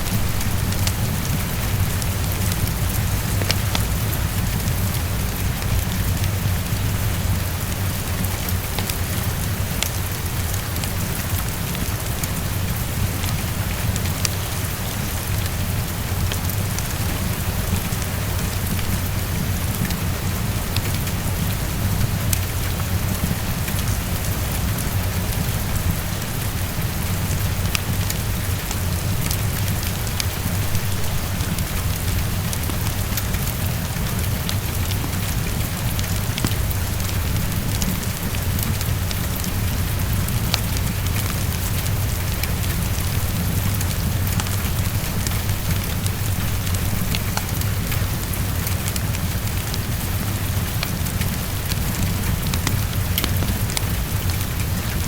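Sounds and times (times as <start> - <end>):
heavy rain against a window: 0.0 - 55.0.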